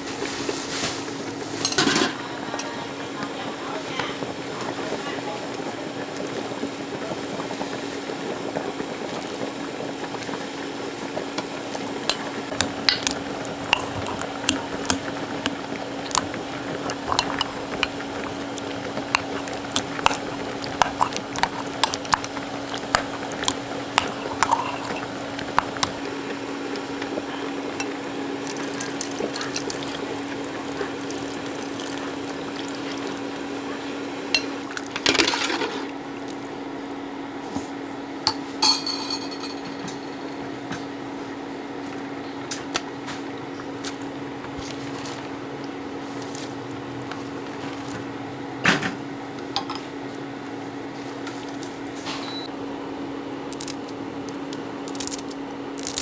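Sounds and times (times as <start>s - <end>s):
utensils clinking on pots: 0.7s - 2.8s, 11.8s - 26.1s, 27.7s - 33.6s, 34.3s - 35.9s, 38.3s - 40.5s
liquid bubbling: 3.0s - 37.4s, 43.9s - 56.0s.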